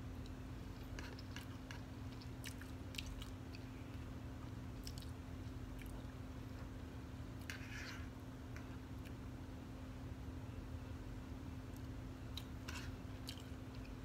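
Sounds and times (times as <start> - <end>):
steady low hum: 0.0 - 14.0
person chewing food: 0.2 - 6.7, 12.3 - 14.0.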